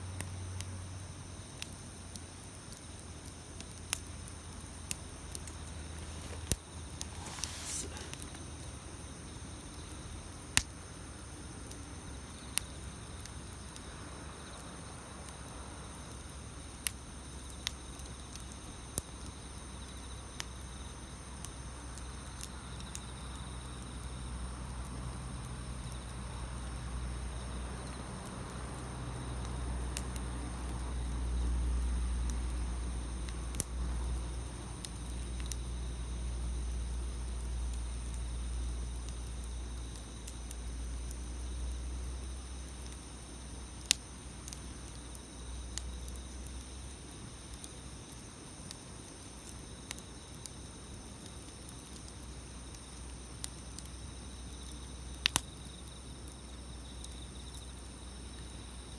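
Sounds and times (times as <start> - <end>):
campfire crackling and popping: 0.1 - 58.9.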